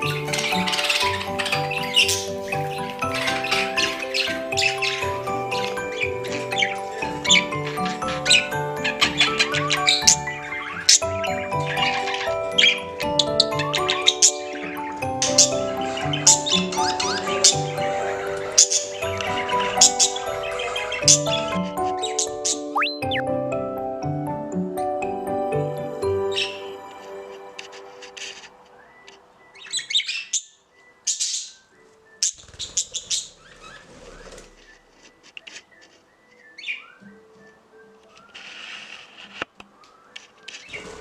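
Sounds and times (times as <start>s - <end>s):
high bird chirps: 0.0s - 24.1s, 25.2s - 41.0s
background music with held notes: 0.0s - 41.0s.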